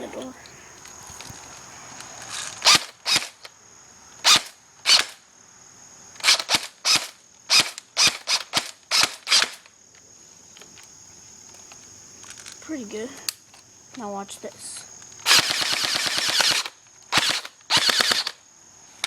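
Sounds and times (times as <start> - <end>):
airsoft rifle shots: 6.2 - 9.6, 15.2 - 18.4.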